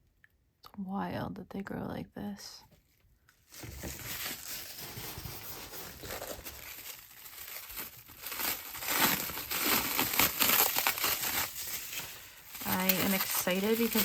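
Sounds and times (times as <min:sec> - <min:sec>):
packing material crinkling and tearing: 0:03.4 - 0:14.0.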